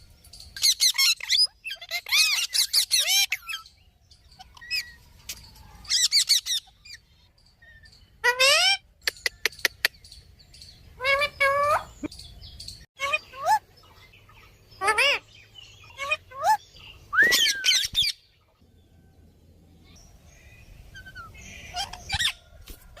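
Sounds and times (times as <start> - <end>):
parrots calling: 0.6 - 5.0, 5.8 - 12.1, 13.0 - 18.3, 21.0 - 22.5.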